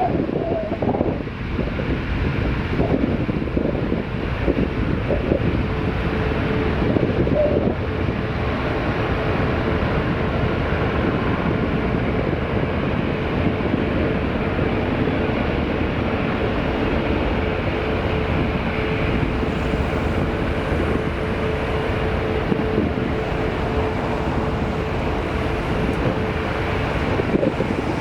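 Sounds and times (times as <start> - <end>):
jet engines at takeoff: 0.0 - 28.0.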